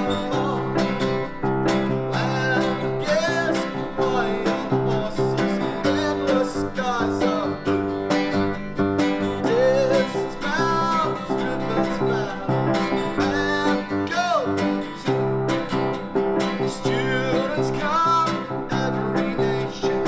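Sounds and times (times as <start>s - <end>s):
acoustic guitar strumming: 0.0s - 20.0s
gliding melody line: 0.0s - 20.0s.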